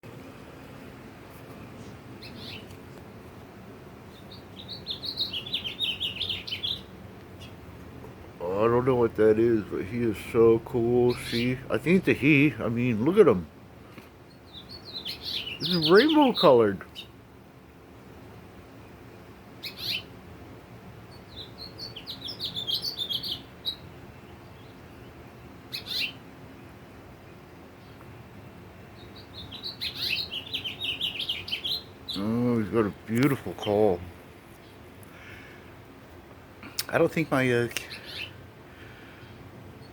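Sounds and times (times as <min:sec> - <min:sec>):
finch chirp: 0:02.2 - 0:02.7, 0:04.1 - 0:07.6, 0:10.9 - 0:12.0, 0:14.2 - 0:17.2, 0:19.6 - 0:20.1, 0:21.1 - 0:26.2, 0:28.9 - 0:34.0, 0:37.8 - 0:38.4
finch twittering: 0:02.2 - 0:02.7, 0:04.1 - 0:07.6, 0:08.5 - 0:12.4, 0:14.2 - 0:17.2, 0:19.6 - 0:20.1, 0:21.1 - 0:26.2, 0:29.0 - 0:34.0, 0:37.2 - 0:39.9.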